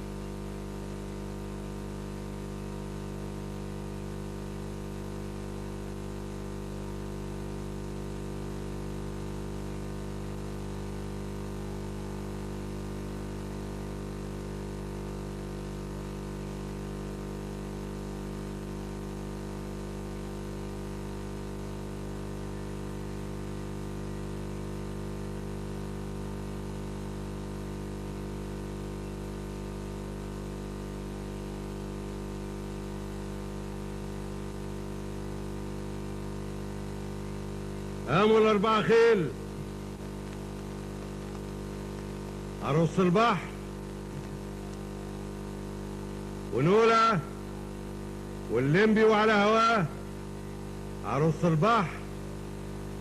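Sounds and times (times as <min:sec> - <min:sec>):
electrical mains hum: 0:00.0 - 0:53.0
low recording hiss: 0:37.7 - 0:53.0.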